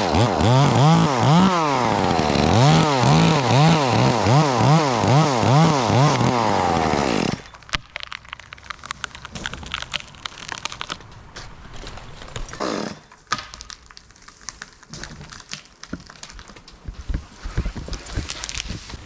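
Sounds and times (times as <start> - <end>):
tree limb wood crackling and snapping: 0.0 - 17.0, 17.8 - 19.0
loud drawn-out wood creak: 6.1 - 13.2.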